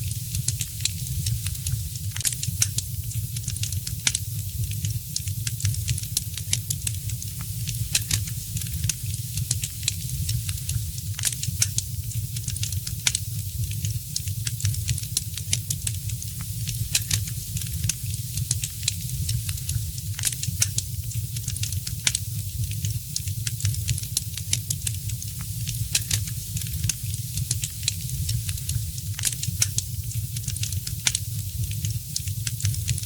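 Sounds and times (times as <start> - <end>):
wood fire crackling and popping: 0.0 - 33.0.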